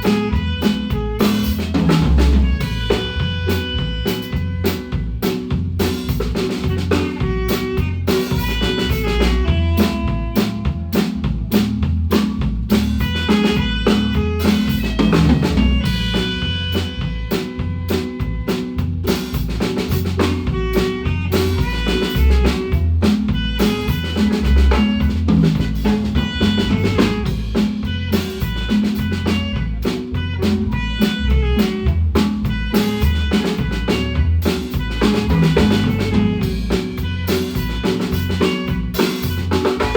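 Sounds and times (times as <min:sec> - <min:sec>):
drum kit with snare hits: 0:00.0 - 0:39.9
heavy bass line: 0:00.0 - 0:39.9
marimba notes: 0:19.9 - 0:39.9.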